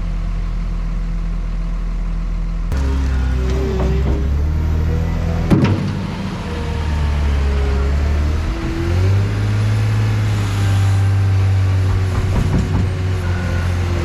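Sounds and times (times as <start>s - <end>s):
heavy vehicle engine running: 0.0s - 14.0s.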